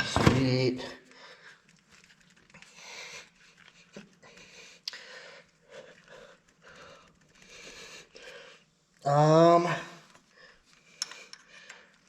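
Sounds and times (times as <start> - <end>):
panting breaths: 1.0 - 9.0.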